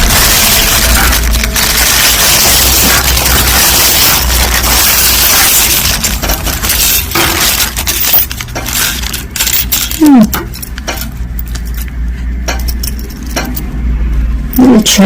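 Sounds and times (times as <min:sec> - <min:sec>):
bag rustling: 0:00.0 - 0:11.9
glass beads clinking: 0:00.0 - 0:13.7.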